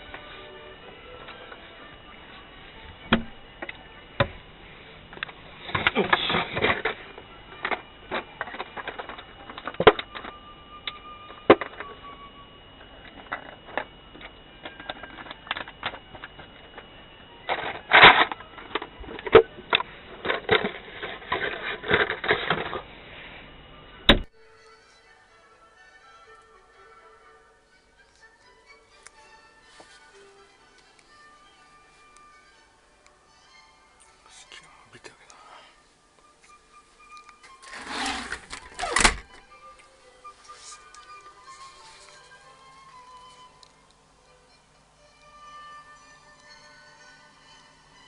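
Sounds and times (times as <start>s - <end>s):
faint steady high whine: 0.0s - 48.0s
objects being handled: 12.9s - 22.9s, 28.9s - 33.1s, 36.2s - 44.0s.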